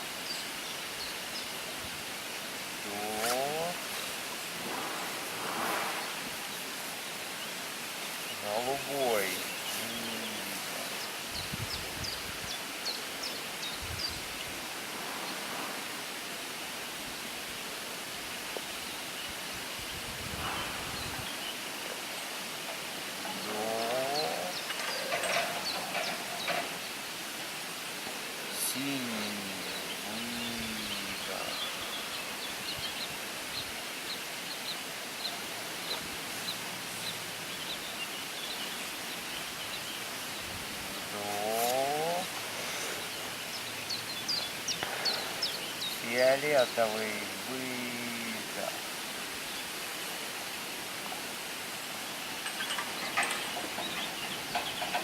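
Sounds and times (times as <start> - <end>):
outdoor background noise: 0.0 - 55.0
bird chirping: 23.2 - 26.9, 28.4 - 49.7, 52.3 - 55.0.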